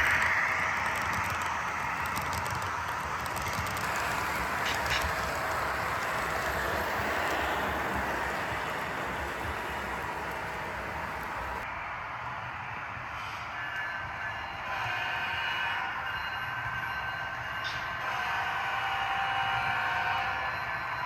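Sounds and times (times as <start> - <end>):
model train rolling on track: 0.0 - 11.7.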